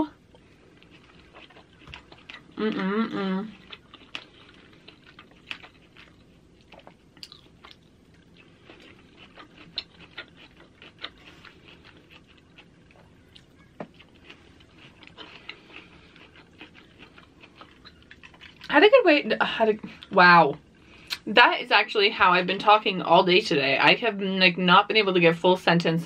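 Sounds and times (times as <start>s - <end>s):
person chewing food: 0.1s - 18.7s.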